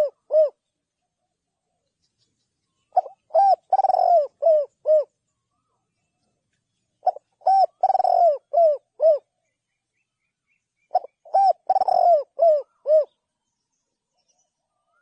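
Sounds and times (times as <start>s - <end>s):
dove cooing: 0.0s - 0.6s, 2.9s - 5.7s, 7.0s - 9.4s, 10.9s - 13.2s.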